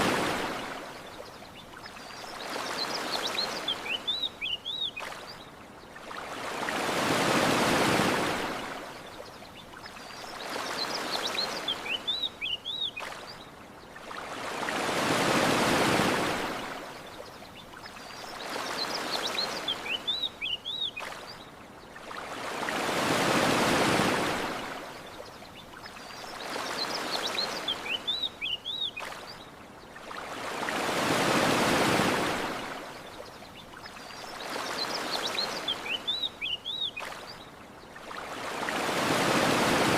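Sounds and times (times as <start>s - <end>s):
ocean waves washing ashore: 0.0s - 39.9s
small birds chirping: 1.0s - 6.7s, 9.0s - 14.7s, 16.8s - 22.7s, 25.0s - 30.7s, 33.0s - 38.7s.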